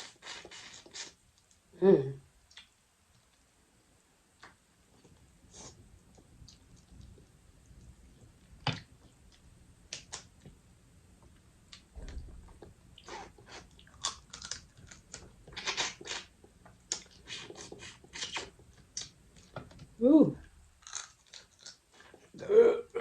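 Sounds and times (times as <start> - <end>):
person chewing: 13.0 - 16.3, 16.9 - 19.1.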